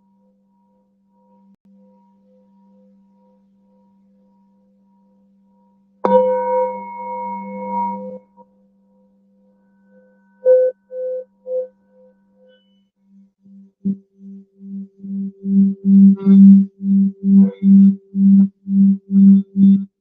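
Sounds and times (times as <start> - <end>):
singing bowl ringing: 0.0 - 19.8.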